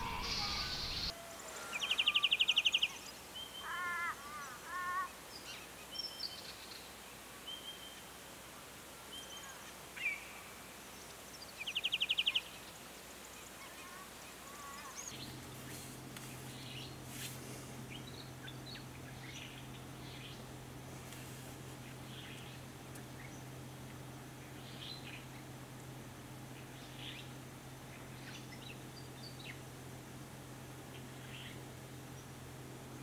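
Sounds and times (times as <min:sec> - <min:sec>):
small birds trilling and chirping: 0:00.0 - 0:08.2, 0:09.0 - 0:33.0
steady low hum: 0:15.1 - 0:33.0.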